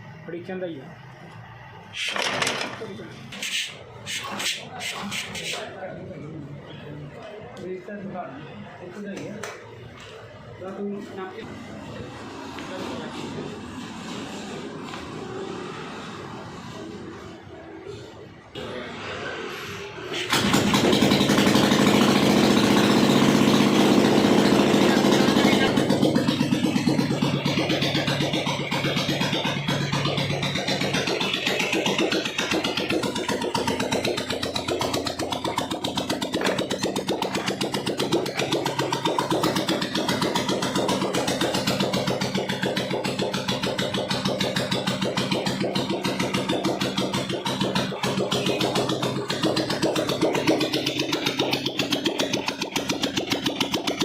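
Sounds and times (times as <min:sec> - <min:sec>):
motorcycle engine idling: 0:20.0 - 0:54.0.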